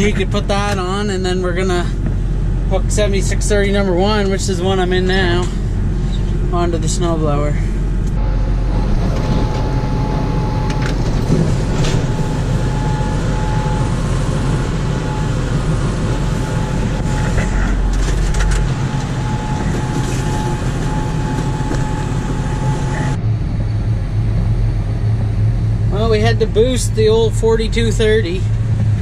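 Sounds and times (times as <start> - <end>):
tractor diesel engine running: 0.0 - 29.0
thin high tone: 8.2 - 23.2.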